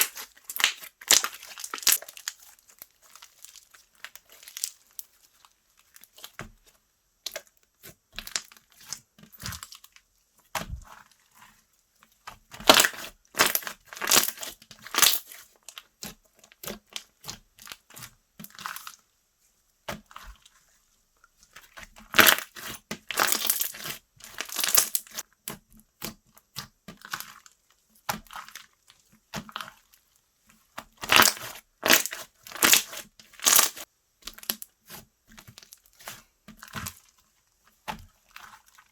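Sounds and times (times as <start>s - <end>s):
slime squishing and popping: 0.0s - 2.5s, 12.6s - 15.3s, 31.0s - 35.7s.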